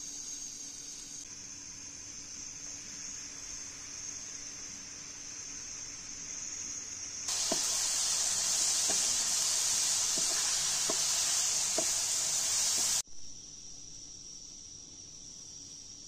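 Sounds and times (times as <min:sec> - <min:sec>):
crickets chirping: 0:00.0 - 0:16.0
food sizzling in frying pan: 0:07.2 - 0:13.0
wooden spoon knocking pan: 0:07.3 - 0:13.0.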